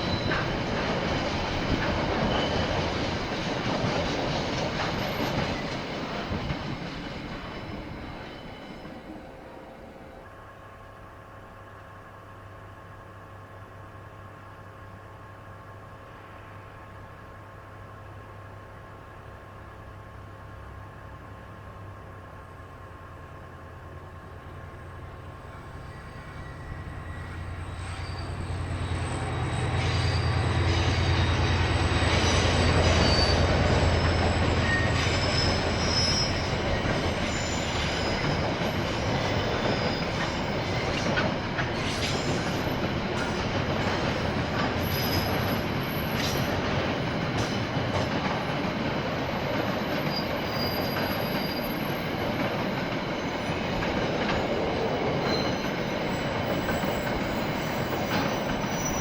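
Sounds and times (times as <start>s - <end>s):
clicking train wheels: 0.0s - 10.4s, 20.6s - 59.0s
locomotive engine hum: 17.0s - 58.9s
high wheel squeal: 25.0s - 46.6s, 49.7s - 52.4s, 54.4s - 59.0s.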